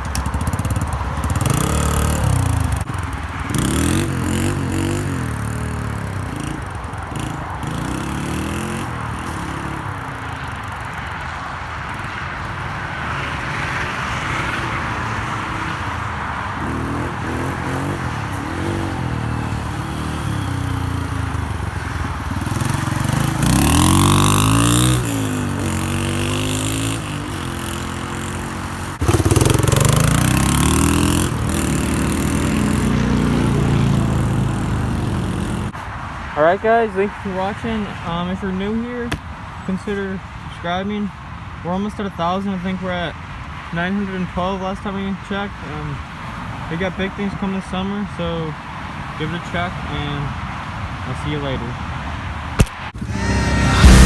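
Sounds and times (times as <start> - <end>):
dirt bike engine revving: 0.0 - 11.0, 13.2 - 35.8, 52.6 - 54.0.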